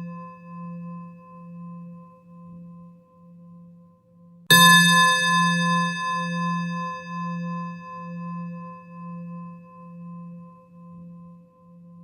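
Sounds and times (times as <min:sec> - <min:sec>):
singing bowl ringing: 0:00.0 - 0:01.7, 0:04.5 - 0:11.2.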